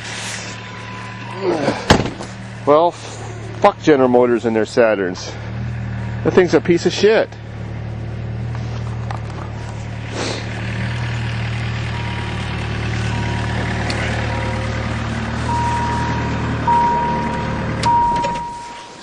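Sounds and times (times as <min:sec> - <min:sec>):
vehicle engine idling: 0:00.0 - 0:19.0
electronic warning chime beeping: 0:15.5 - 0:19.0.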